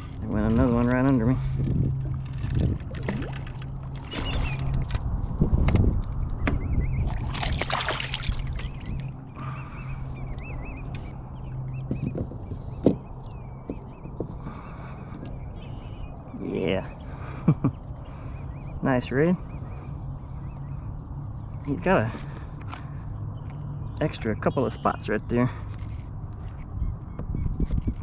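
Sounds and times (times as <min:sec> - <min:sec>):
water splashing and sloshing: 0:00.0 - 0:11.2
low steady hum: 0:00.0 - 0:24.4.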